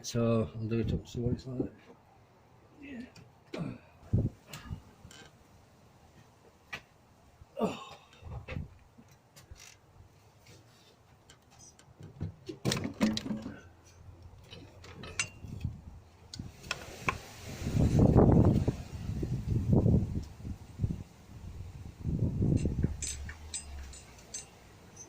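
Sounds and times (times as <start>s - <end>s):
hand tools clinking on metal: 13.2s - 15.6s, 22.5s - 25.0s.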